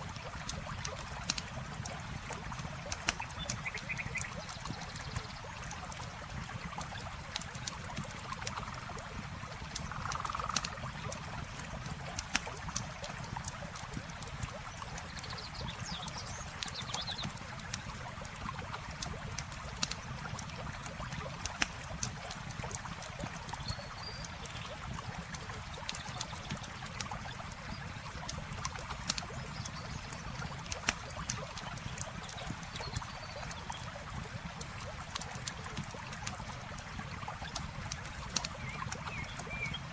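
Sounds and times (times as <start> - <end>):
campfire crackling and popping: 0.0 - 39.9
river water flowing: 0.0 - 39.9.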